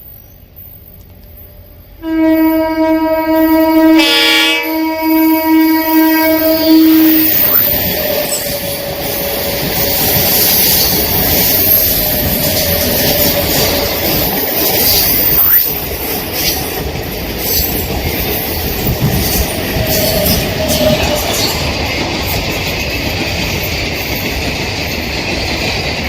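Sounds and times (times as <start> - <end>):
train wheels rushing on rails: 0.0 - 26.0
wheels clicking over rail joints: 7.2 - 26.0.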